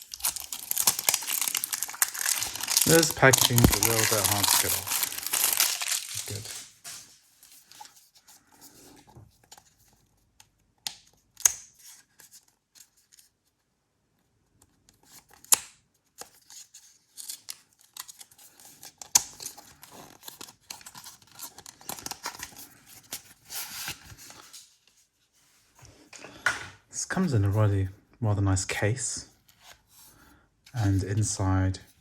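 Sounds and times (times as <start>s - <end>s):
packaging snaps: 0.0s - 6.7s
crackly packaging rustling: 0.0s - 10.1s, 16.1s - 26.4s.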